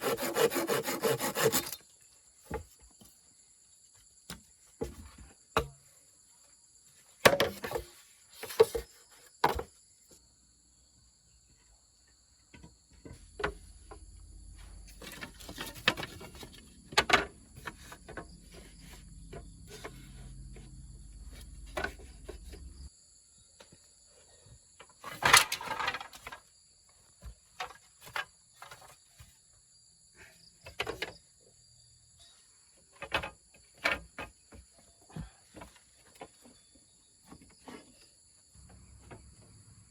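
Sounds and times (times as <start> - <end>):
knocks and clatters of handwork: 7.2 - 9.8, 14.9 - 22.9, 32.9 - 38.0
insects chirring: 8.4 - 35.3, 36.2 - 39.9.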